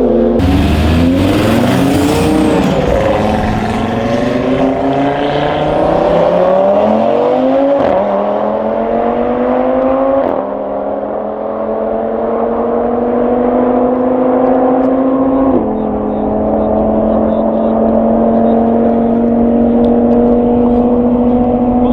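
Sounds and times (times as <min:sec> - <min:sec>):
car engine at full throttle: 0:00.0 - 0:21.9
gear upshifts: 0:00.4 - 0:06.6.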